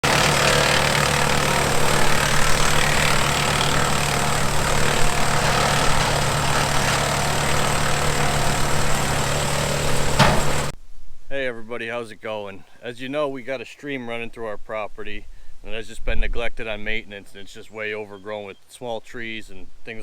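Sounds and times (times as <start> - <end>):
tractor diesel engine running: 0.0 - 10.8
wood chipper rushing noise: 0.0 - 10.8.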